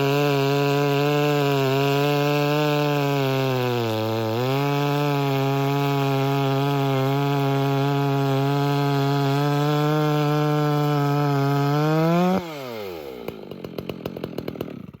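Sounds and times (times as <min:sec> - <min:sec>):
chainsaw running at high revs: 0:00.0 - 0:15.0
chainsaw winding down ticking: 0:09.4 - 0:15.0.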